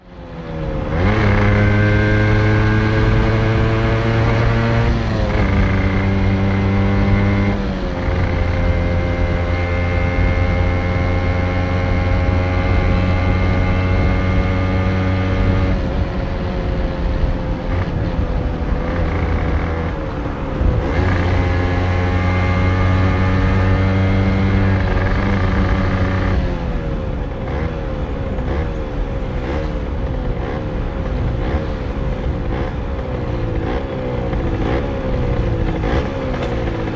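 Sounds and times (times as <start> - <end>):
two-stroke motorcycle engine revving: 0.8 - 36.9.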